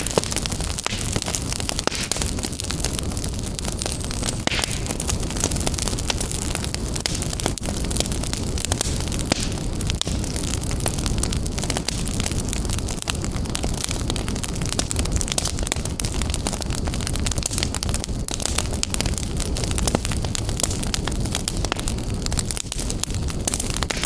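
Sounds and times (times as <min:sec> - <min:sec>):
low fire rumble: 0:00.0 - 0:24.0
wood fire crackling and popping: 0:00.0 - 0:24.0.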